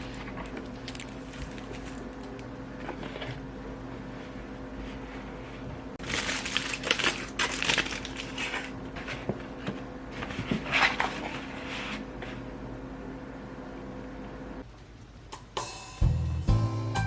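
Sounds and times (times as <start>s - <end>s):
crinkling crumpling handling noise: 0.0s - 3.4s, 6.0s - 12.0s.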